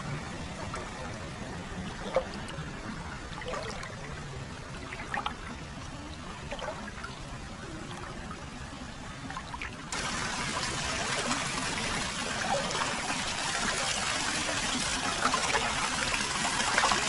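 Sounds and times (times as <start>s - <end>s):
water splashes: 0.0s - 17.0s
water pouring into foot bath: 9.9s - 17.0s.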